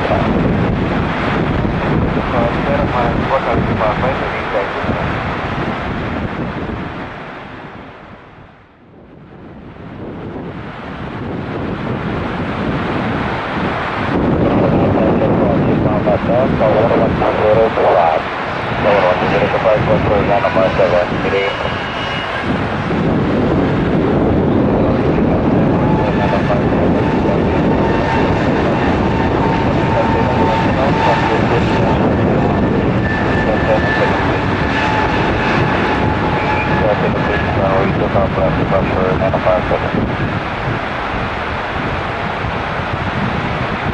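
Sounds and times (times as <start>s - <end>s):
jet airliner taking off: 0.0s - 43.9s
wind on microphone: 0.0s - 43.9s
heavy rain: 39.6s - 43.9s.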